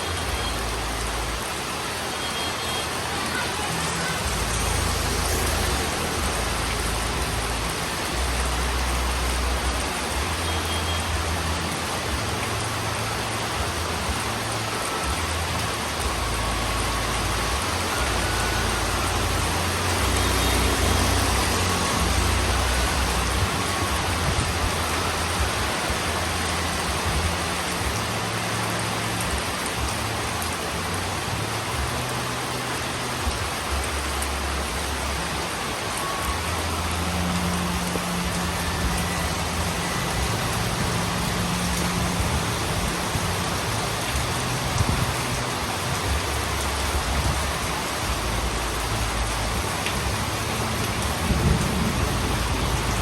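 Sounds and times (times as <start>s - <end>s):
heavy rain on a roof: 0.0s - 53.0s
low thunder rumbles: 51.0s - 53.0s.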